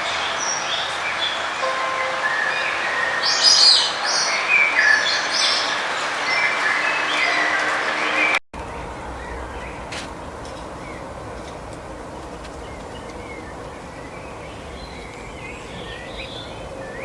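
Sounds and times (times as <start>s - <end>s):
outdoor background noise: 0.0s - 17.0s
small birds chirping: 8.6s - 17.0s.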